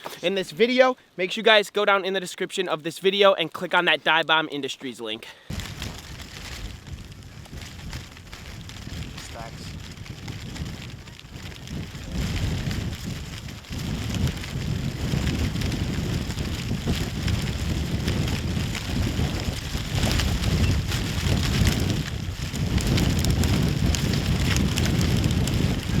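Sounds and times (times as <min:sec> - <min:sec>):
light crackle and rustle: 0:03.0 - 0:26.0
wind buffeting microphone: 0:05.5 - 0:26.0.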